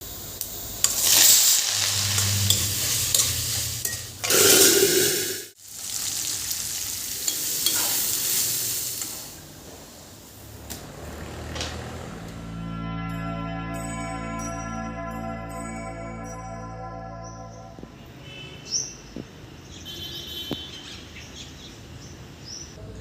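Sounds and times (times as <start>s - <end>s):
food sizzling in a pan: 0.0s - 10.2s.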